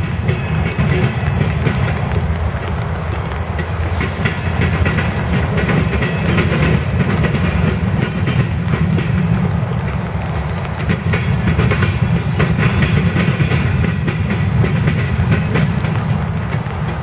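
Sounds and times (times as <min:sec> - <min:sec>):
train wheels rumbling on rails: 0:00.0 - 0:17.0
wheels clicking over rail joints: 0:00.0 - 0:17.0.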